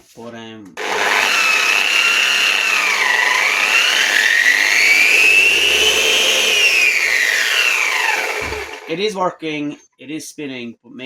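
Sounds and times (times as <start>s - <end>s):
car polisher high whine: 0.8s - 8.9s.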